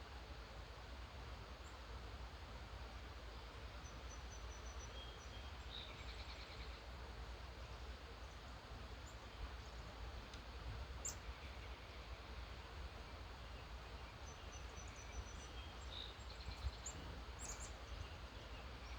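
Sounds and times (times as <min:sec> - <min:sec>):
faint birdsong: 0:03.7 - 0:07.0, 0:07.6 - 0:18.9.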